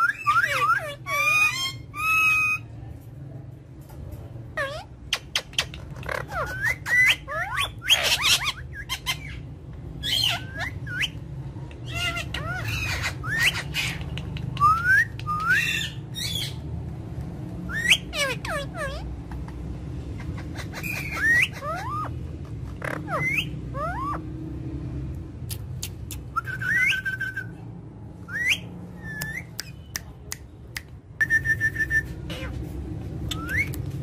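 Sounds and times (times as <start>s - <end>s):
parrot whistling and squawking: 0.0s - 2.7s, 4.6s - 16.6s, 17.7s - 19.4s, 20.1s - 24.2s, 25.8s - 27.6s, 28.2s - 29.8s, 31.2s - 32.6s, 33.2s - 34.0s.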